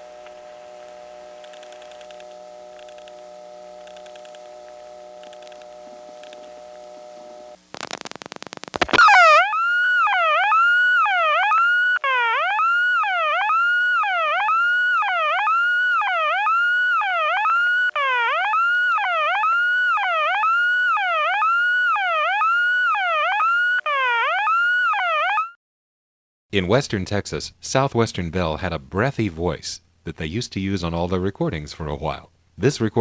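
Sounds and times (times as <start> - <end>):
faint steady tone: 0.0 - 12.0
warbling telephone intercept tone: 0.0 - 12.0.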